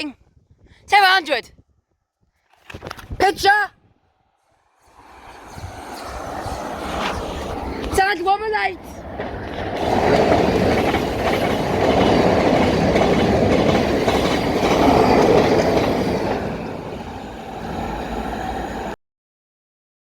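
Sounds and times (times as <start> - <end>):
train wheels rumbling on rail: 4.9 - 19.0.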